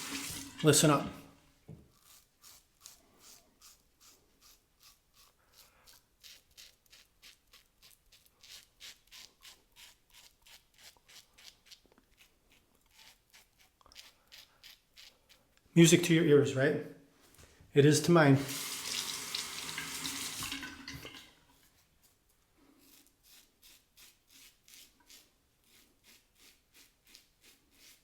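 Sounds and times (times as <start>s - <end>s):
razor scraping stubble: 1.8s - 16.0s, 21.5s - 28.0s.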